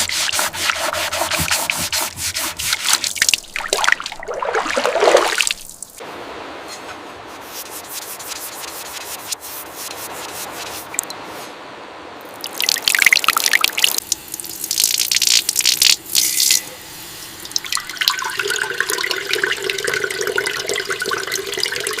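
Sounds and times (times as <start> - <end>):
water splashing from a tap: 3.0 - 6.0, 12.4 - 16.7, 17.4 - 22.0.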